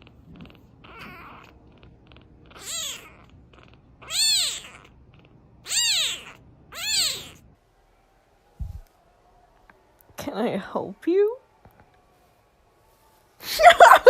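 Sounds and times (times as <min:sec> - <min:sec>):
cat meowing: 0:00.8 - 0:01.6, 0:02.5 - 0:04.9, 0:05.6 - 0:07.5.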